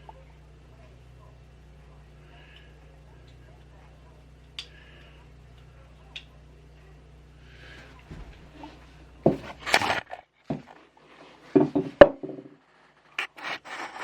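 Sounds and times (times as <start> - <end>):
hard objects knocking: 9.2 - 10.8, 11.5 - 12.6.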